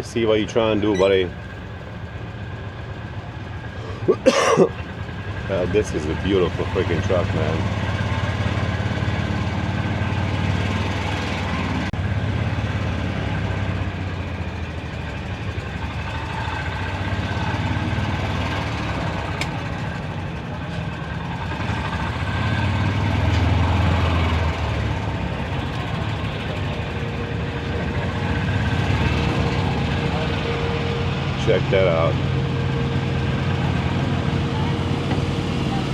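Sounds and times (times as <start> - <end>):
vehicle engine humming: 0.0 - 35.9.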